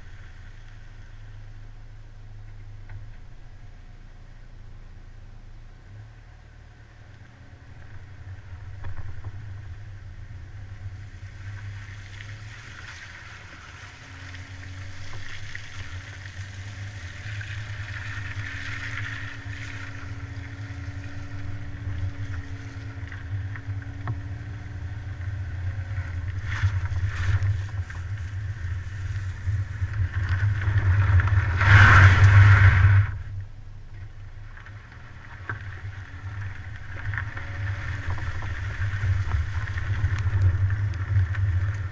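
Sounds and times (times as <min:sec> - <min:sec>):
car road rumble: 0:00.0 - 0:41.9
wind noise: 0:36.2 - 0:41.9.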